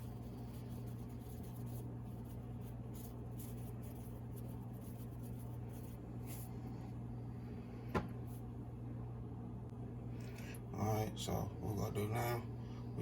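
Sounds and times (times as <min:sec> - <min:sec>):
scratching and rustling in flour: 0:00.0 - 0:06.8
low electrical hum: 0:00.0 - 0:13.0.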